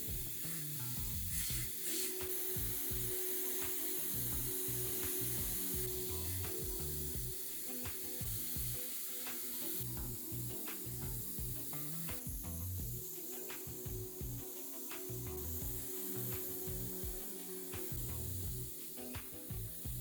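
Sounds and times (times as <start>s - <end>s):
background music with bass line: 0.0s - 20.0s
steady high hiss: 0.0s - 20.0s.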